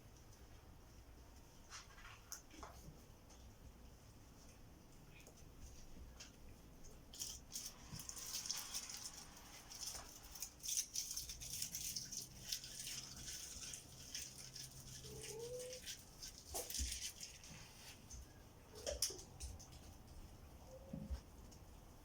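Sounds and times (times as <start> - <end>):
cats scratching and tapping: 5.2 - 20.3.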